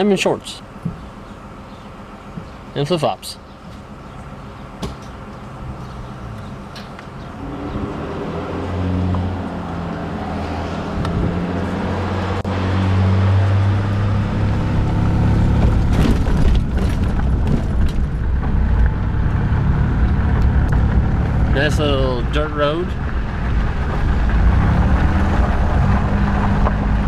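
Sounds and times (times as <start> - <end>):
car engine: 3.4 - 27.0
road noise inside car: 3.4 - 27.0
knocks and rattles: 15.5 - 19.0.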